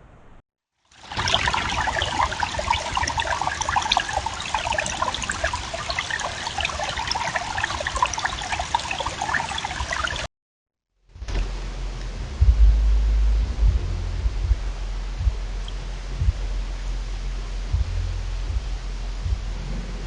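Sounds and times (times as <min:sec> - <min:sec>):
water trickling and dripping: 0:00.9 - 0:10.3.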